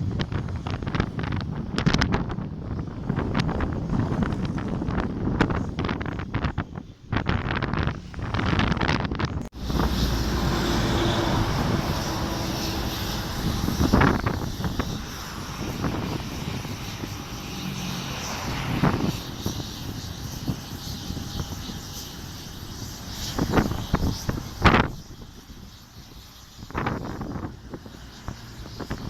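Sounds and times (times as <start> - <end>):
airplane engines passing: 0.0 - 29.0
wind buffeting microphone: 0.0 - 29.0.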